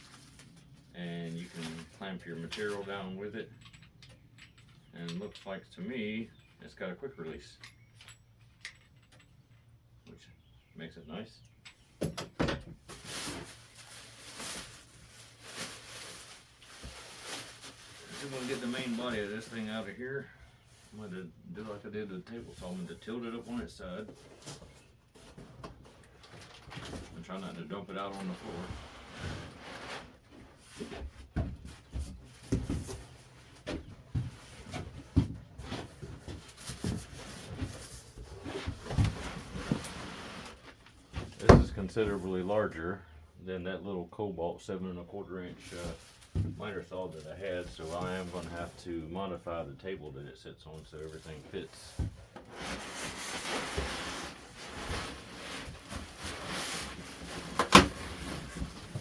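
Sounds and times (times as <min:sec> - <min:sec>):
cardboard rubbing and scraping: 0:28.4 - 0:30.9, 0:52.2 - 0:59.0.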